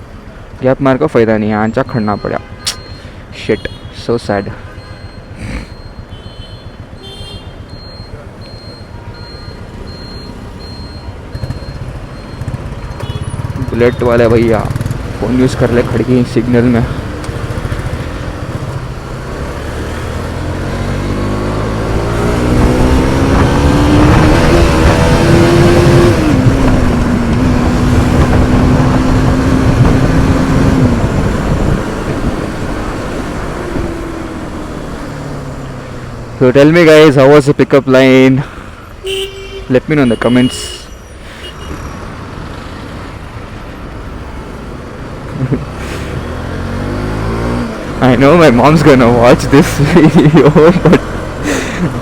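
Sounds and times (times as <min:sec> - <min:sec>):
vehicles idling in traffic: 0:00.0 - 0:03.6, 0:04.2 - 0:20.3, 0:29.6 - 0:52.0
high electronic beeps: 0:01.7 - 0:03.2, 0:04.8 - 0:06.1, 0:07.7 - 0:14.2
motorcycle engine running: 0:11.3 - 0:16.1, 0:16.9 - 0:19.4
wind rumble on microphone: 0:26.2 - 0:32.8.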